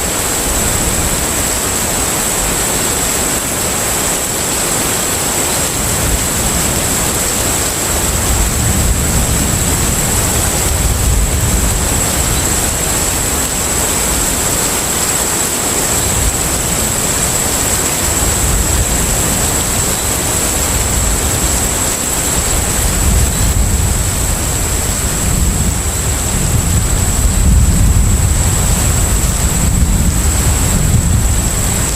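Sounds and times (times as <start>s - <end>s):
steady rushing noise: 0.0s - 31.9s
deep rumble: 20.6s - 31.9s.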